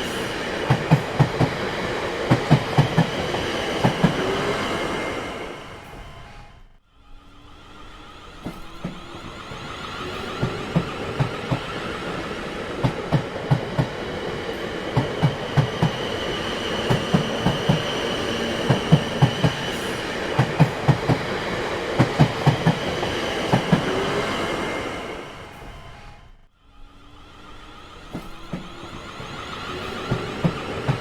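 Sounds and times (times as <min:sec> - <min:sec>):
train wheels clacking over rail joints: 0:00.0 - 0:04.5, 0:08.4 - 0:24.1, 0:28.1 - 0:31.0.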